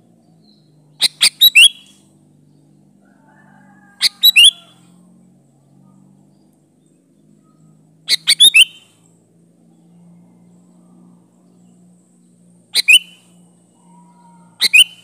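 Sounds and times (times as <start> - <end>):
faint low hum: 0.0 - 15.0
bird chirpy calls: 0.4 - 2.0, 4.0 - 4.7, 7.5 - 9.0, 12.6 - 15.0.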